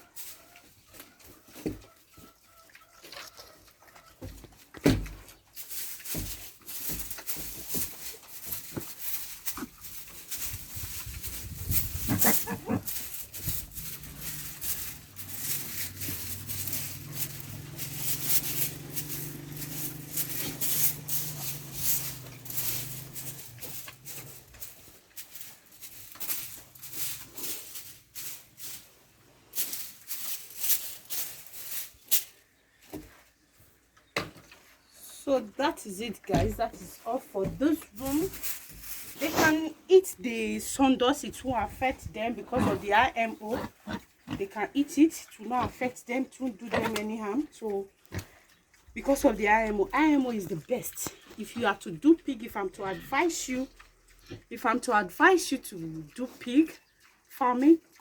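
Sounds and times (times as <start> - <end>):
farm animals calling: 0.0 - 4.5, 8.4 - 28.8, 47.7 - 58.0
broom scraping and rustling: 4.7 - 33.8, 34.6 - 44.3.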